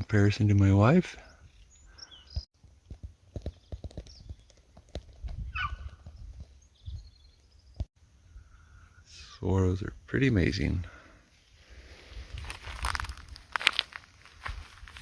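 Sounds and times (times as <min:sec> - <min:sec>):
high bird chirps: 0:05.4 - 0:09.0
footsteps on gravel: 0:11.9 - 0:15.0.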